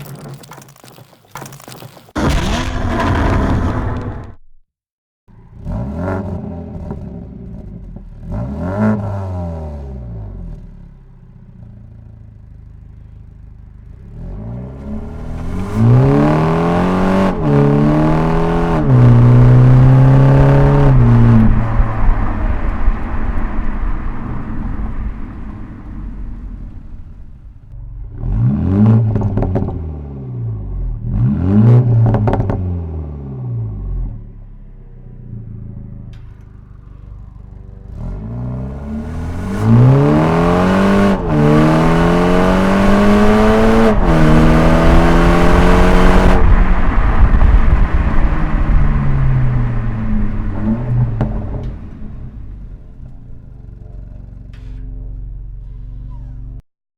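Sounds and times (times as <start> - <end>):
car exhaust throttle blips: 11.6 - 33.0, 33.6 - 56.6
car accelerating hard: 14.0 - 34.3, 37.0 - 54.3.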